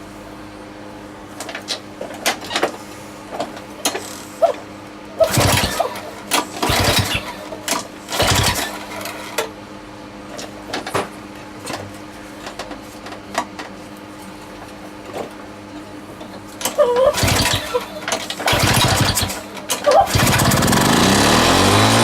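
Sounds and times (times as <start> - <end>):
recoil starter pulls: 5.2 - 9.5, 16.6 - 22.0.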